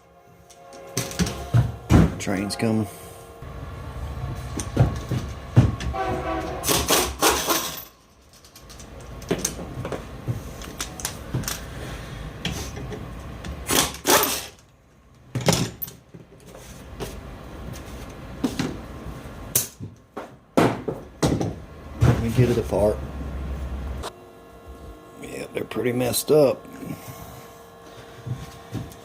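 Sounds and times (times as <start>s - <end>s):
train horn: 0.0s - 3.8s, 5.8s - 7.1s
train rumbling: 0.0s - 7.6s, 21.8s - 24.1s.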